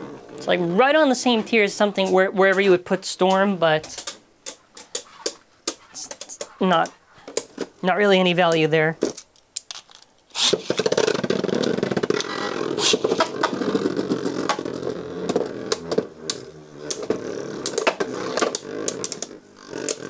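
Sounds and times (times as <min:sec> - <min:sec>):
spinning tops whirring scrape: 0:10.3 - 0:20.0.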